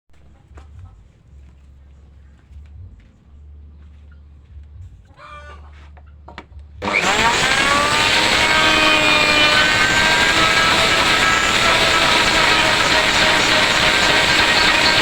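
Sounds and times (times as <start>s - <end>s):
power tool motor spinning up: 6.8s - 15.0s.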